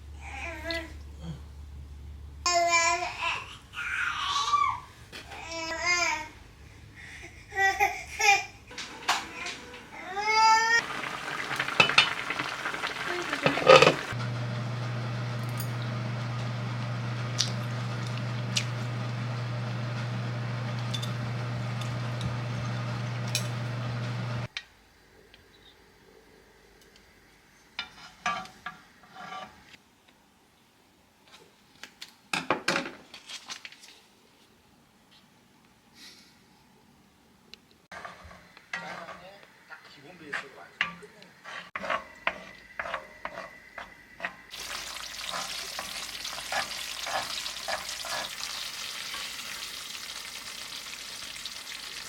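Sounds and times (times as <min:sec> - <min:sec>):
low hum with sizzling hiss: 0:00.0 - 0:31.3, 0:38.5 - 0:52.0
metal utensils clinking on pots: 0:10.8 - 0:14.2, 0:20.8 - 0:21.2.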